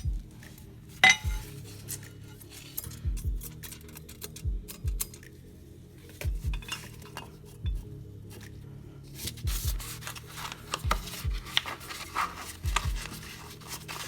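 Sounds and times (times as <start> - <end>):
background music with thudding beat: 0.0 - 14.0
metal parts clinking: 1.0 - 5.2.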